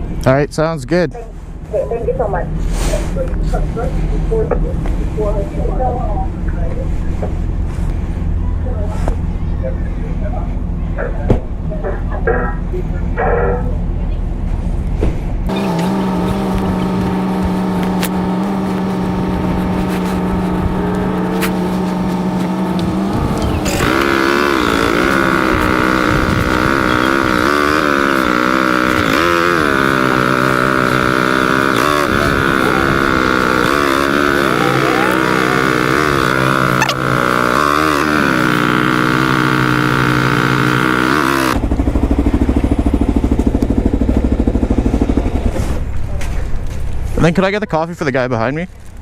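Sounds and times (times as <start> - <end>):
motorcycle engine idling: 15.5 - 47.1.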